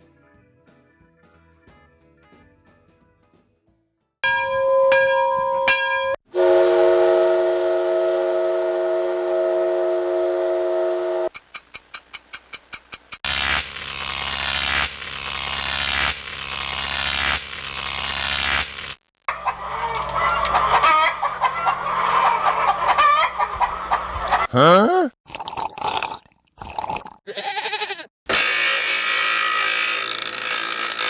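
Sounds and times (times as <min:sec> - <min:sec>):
poultry clucking and honking: 0:19.3 - 0:24.5, 0:27.3 - 0:28.1.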